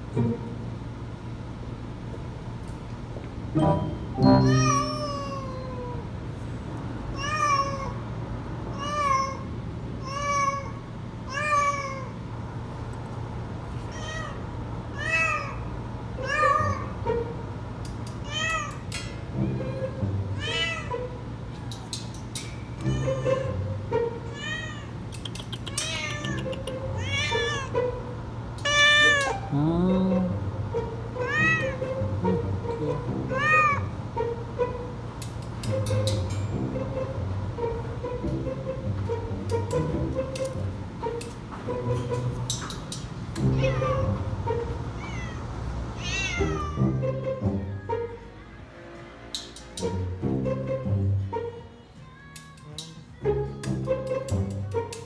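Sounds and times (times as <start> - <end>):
cat meowing: 4.4 - 6.1, 7.1 - 8.0, 8.7 - 12.2, 13.8 - 17.0, 18.2 - 18.9, 19.6 - 21.2, 22.8 - 28.0, 28.6 - 34.1, 43.4 - 46.8.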